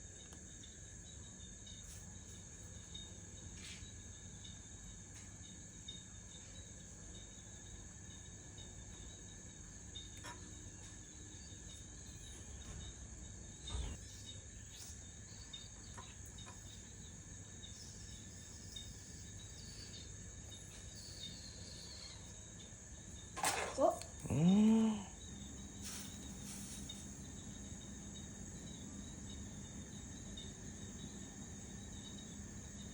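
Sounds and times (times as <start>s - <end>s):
high-pitched insect chorus: 0.5s - 32.9s.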